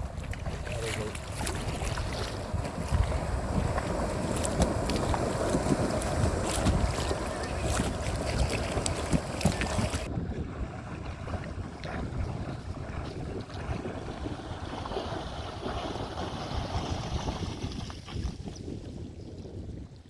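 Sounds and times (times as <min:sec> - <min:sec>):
water washing around kayak: 0:00.0 - 0:20.0
wind on microphone: 0:00.0 - 0:20.0.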